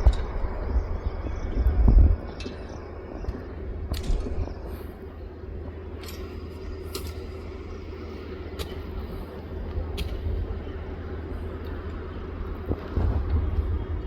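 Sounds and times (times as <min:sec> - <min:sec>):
train rumbling on tracks: 0:00.0 - 0:14.0.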